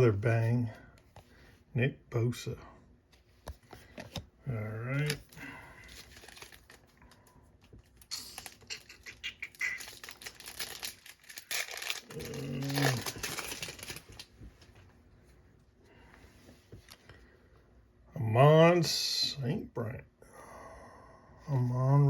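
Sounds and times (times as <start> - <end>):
foil packaging crinkling: 4.9 - 14.4
man humming: 12.0 - 13.2.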